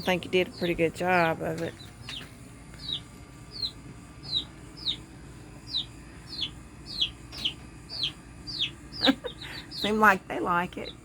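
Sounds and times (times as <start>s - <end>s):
baby chicks peeping: 0.0s - 11.0s.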